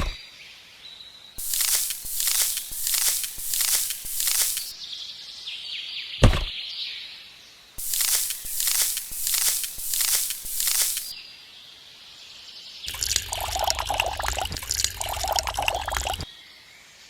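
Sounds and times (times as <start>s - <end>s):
liquid pouring and splashing: 1.4s - 4.8s, 7.8s - 11.2s, 12.9s - 16.3s.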